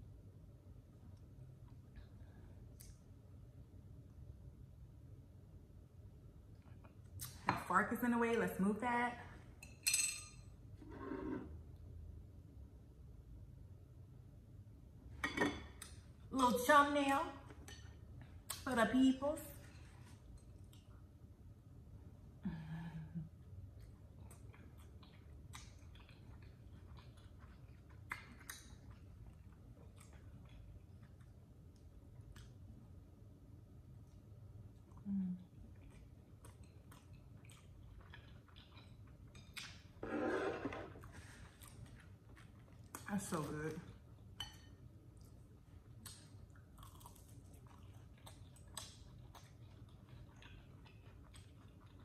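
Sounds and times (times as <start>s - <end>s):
wet chewing and mouth clicks: 23.7s - 32.7s, 34.8s - 40.0s, 41.0s - 43.5s, 45.1s - 52.0s
person humming mm: 35.0s - 35.5s.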